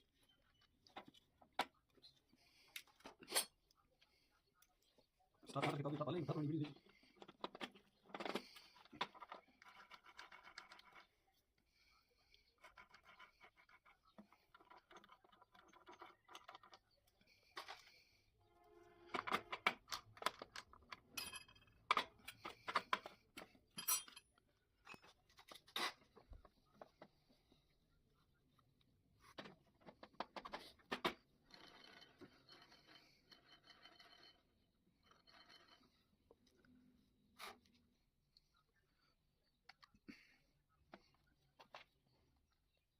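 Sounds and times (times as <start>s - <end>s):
faint scratching of engine parts: 0.2s - 18.4s.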